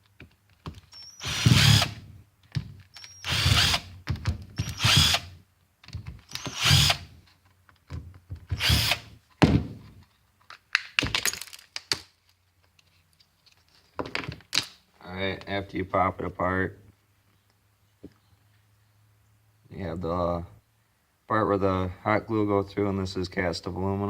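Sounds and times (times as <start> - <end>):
power drill backing out screws: 0.9 - 2.0, 2.9 - 3.9, 4.6 - 5.3, 6.3 - 7.1, 8.6 - 9.1.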